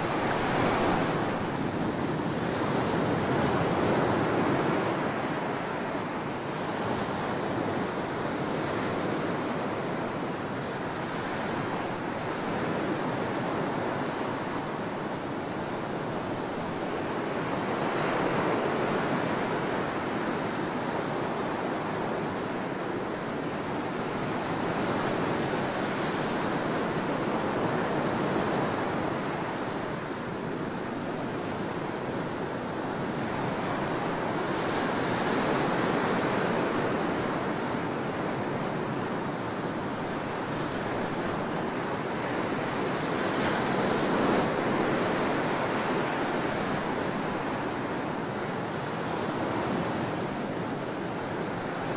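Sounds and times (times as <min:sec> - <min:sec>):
ocean waves breaking: 0:00.0 - 0:10.0.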